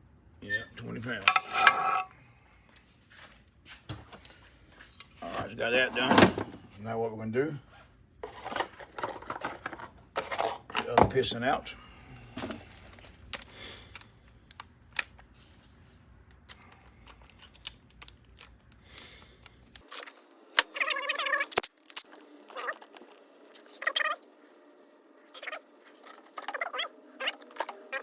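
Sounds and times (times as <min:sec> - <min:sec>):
short squeaks: 0:19.9 - 0:24.2, 0:25.4 - 0:28.0.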